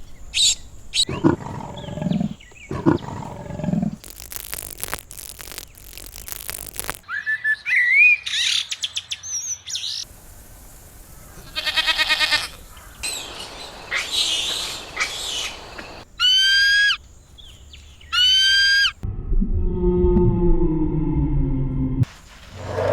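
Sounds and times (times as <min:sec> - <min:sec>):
animal chirps and warbles: 0:00.3 - 0:08.6, 0:12.0 - 0:19.0
rough animal calls: 0:00.4 - 0:07.0, 0:11.4 - 0:17.0, 0:18.1 - 0:19.0.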